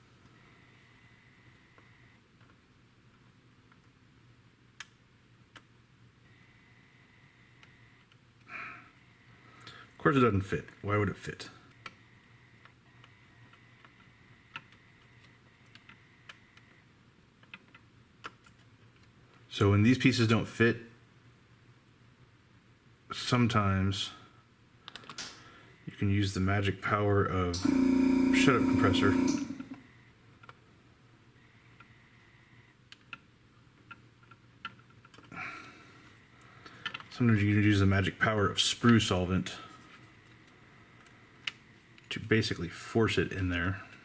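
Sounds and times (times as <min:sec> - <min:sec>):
faint low hum: 0:25.4 - 0:33.0
faint steady high tone: 0:27.6 - 0:29.8.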